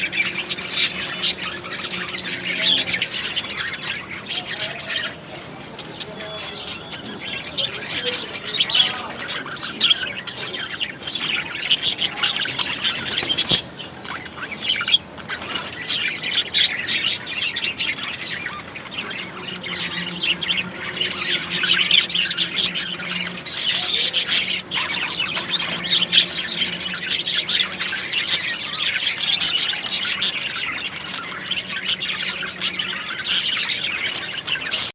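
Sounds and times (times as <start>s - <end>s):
budgerigars chattering: 0.0s - 34.9s.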